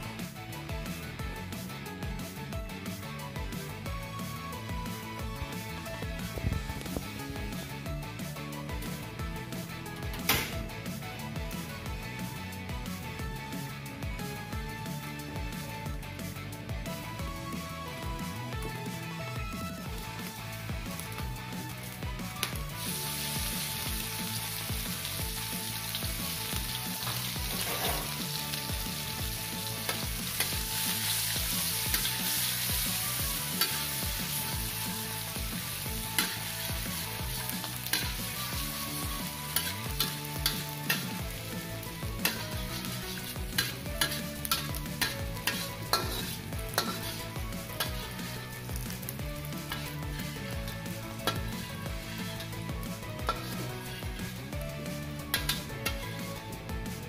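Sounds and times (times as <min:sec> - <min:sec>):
fish sizzling in hot oil: 0:19.8 - 0:54.4, 0:55.2 - 0:56.1
metal spatula clacking on wok: 0:37.4 - 0:38.2, 0:39.5 - 0:41.2, 0:42.2 - 0:47.2, 0:55.3 - 0:56.0.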